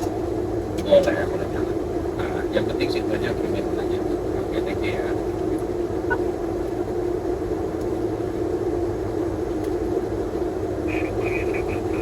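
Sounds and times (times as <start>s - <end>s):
aircraft engine and airflow drone: 0.0s - 12.0s.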